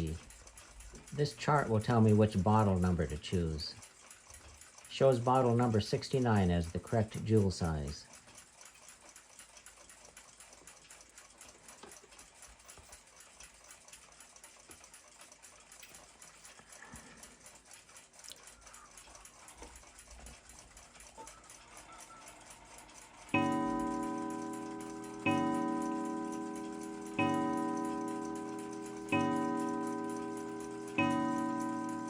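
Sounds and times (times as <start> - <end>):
loud ringing tone: 23.4 - 32.0.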